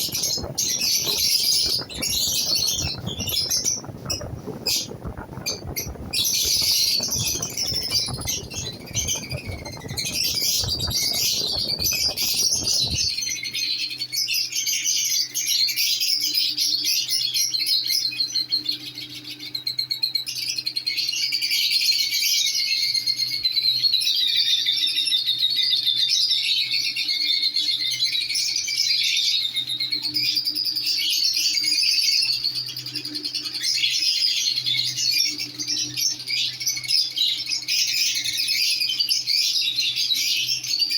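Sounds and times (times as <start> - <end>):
broad background noise: 0.0 - 13.2
lovebirds chattering: 0.0 - 13.3.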